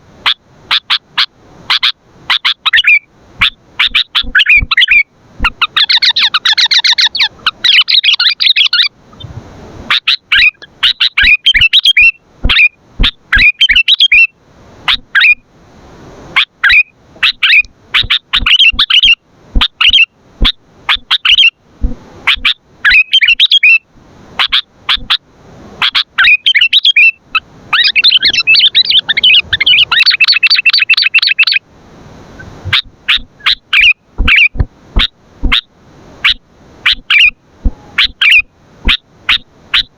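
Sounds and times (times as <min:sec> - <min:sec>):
bulbul calling in sharp chirps: 0:01.7 - 0:08.9, 0:09.9 - 0:14.3, 0:16.4 - 0:21.5, 0:22.3 - 0:23.8, 0:25.8 - 0:31.6, 0:32.7 - 0:39.9
bird rapid chattering: 0:01.8 - 0:08.9, 0:09.9 - 0:14.3, 0:16.6 - 0:20.1, 0:25.8 - 0:31.6, 0:36.2 - 0:39.9.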